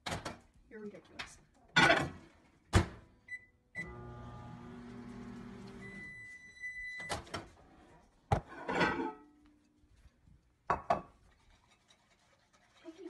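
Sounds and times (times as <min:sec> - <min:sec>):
long microwave beep: 0:03.3 - 0:04.3, 0:05.8 - 0:07.2
microwave oven humming: 0:03.8 - 0:06.4.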